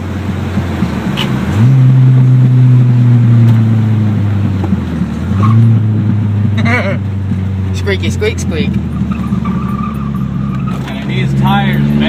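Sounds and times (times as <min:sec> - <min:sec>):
engine revving without muffler: 0:00.0 - 0:12.0.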